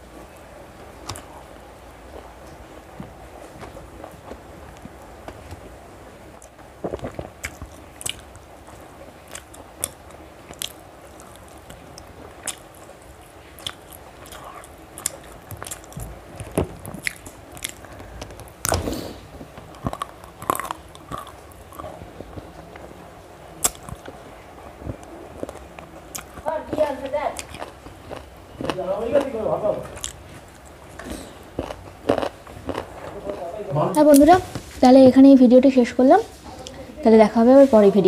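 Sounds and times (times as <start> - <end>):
person chewing and biting food: 6.4 - 22.4, 23.6 - 24.2, 24.9 - 26.8, 27.4 - 33.4.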